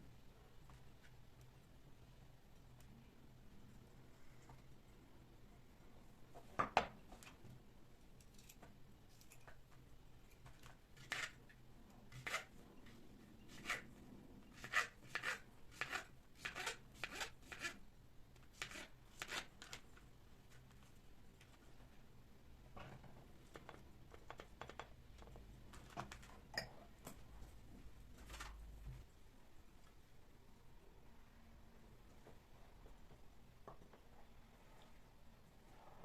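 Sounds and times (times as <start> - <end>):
objects clicking and tapping: 22.8 - 27.2.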